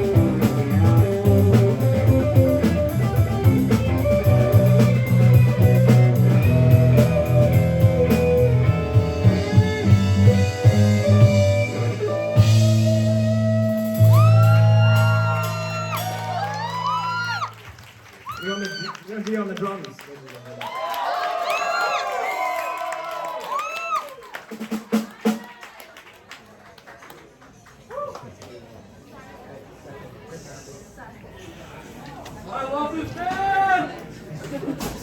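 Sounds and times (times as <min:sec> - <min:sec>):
electric guitar bending notes: 0:00.0 - 0:17.4
live rock band playing: 0:00.0 - 0:17.6.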